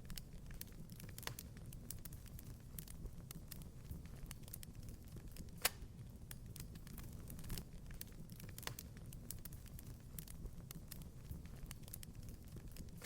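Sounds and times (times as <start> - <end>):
wood fire crackling: 0.0 - 13.0
sharp snap of fire: 5.4 - 12.1.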